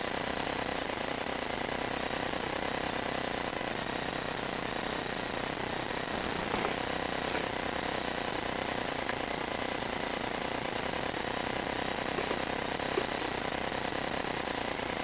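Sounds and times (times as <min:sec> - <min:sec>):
mechanical rattling: 0:05.9 - 0:11.1, 0:12.0 - 0:13.8.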